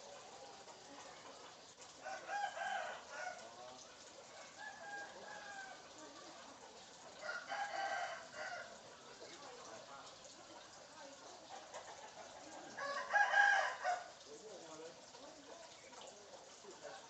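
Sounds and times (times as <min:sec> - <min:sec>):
rooster crowing: 0:02.0 - 0:03.4, 0:04.4 - 0:05.8, 0:07.2 - 0:08.8, 0:12.7 - 0:14.1.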